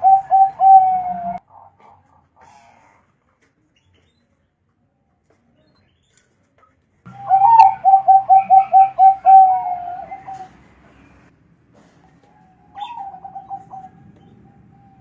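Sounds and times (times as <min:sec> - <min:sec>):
dove cooing: 0:00.0 - 0:03.0, 0:07.1 - 0:11.1, 0:12.3 - 0:15.0.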